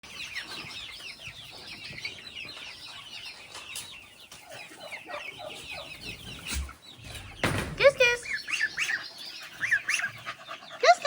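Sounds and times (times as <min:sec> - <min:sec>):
chicks peeping: 0:00.0 - 0:11.0
lower poultry calls: 0:04.4 - 0:11.0.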